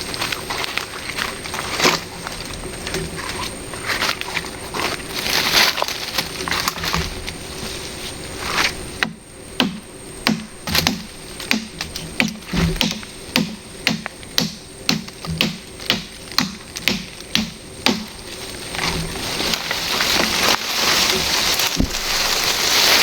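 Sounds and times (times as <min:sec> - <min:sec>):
sharp knocks with dull thud: 0:09.0 - 0:18.1
hiss: 0:17.7 - 0:23.0.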